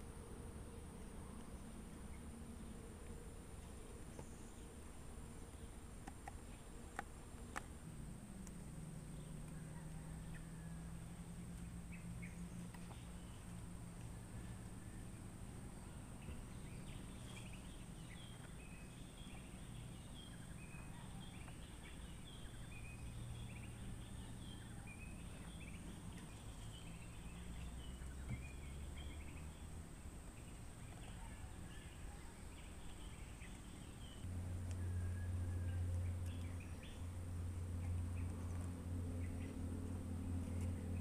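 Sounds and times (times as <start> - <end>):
steady high-pitched whine: 0.0 - 41.0
birds chirping: 8.5 - 41.0.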